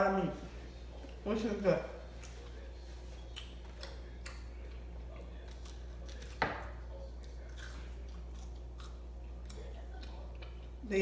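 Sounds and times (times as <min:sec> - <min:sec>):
low steady hum: 0:00.0 - 0:11.0
person chewing a sandwich: 0:02.0 - 0:10.8.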